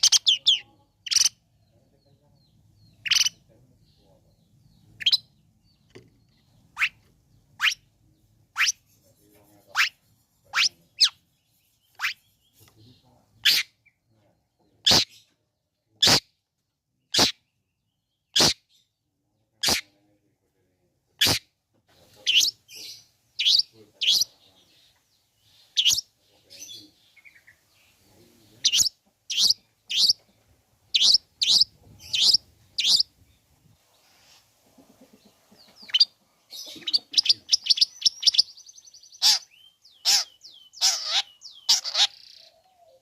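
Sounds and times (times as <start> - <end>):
bird giving harsh calls: 0.0 - 1.4, 6.7 - 7.0, 12.0 - 12.3, 13.4 - 13.8, 18.4 - 18.6, 22.2 - 24.3, 28.6 - 30.2, 30.9 - 33.1, 35.9 - 42.6
bird chattering: 0.0 - 14.0, 14.8 - 15.3, 16.0 - 16.3, 17.1 - 17.5, 18.3 - 18.7, 19.6 - 20.0, 21.2 - 21.5, 22.1 - 24.7, 25.5 - 33.5, 34.2 - 43.0.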